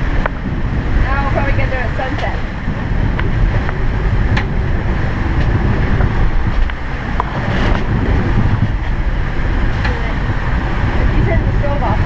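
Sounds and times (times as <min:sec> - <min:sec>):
waves rushing against boat: 0:00.0 - 0:12.0
wind buffeting microphone: 0:00.0 - 0:12.0.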